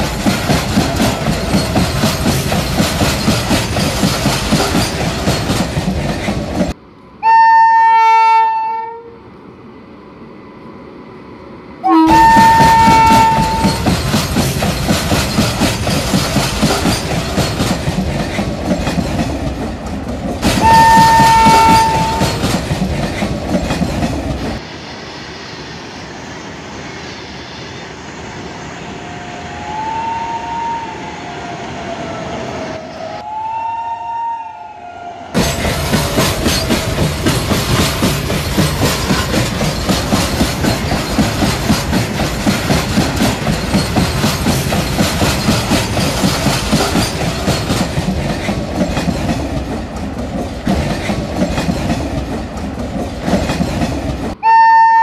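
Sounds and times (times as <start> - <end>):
train wheels rattling over rails: 0.0 - 6.8, 12.0 - 24.7, 35.4 - 54.4
train horn blasts: 7.2 - 9.2, 11.8 - 13.8, 20.6 - 22.4, 29.6 - 31.0, 33.2 - 35.3, 54.4 - 55.0.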